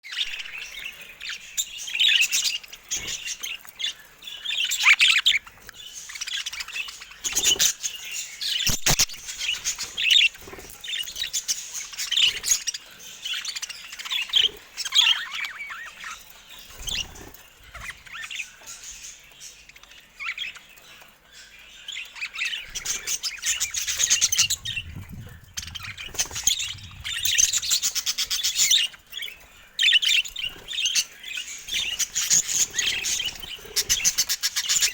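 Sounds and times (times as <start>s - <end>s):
budgerigars chattering: 22.2s - 34.9s.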